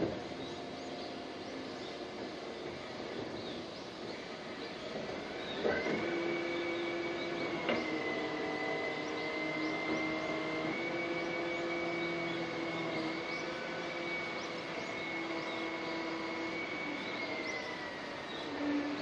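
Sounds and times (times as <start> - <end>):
mechanical drone: 0.0 - 19.0.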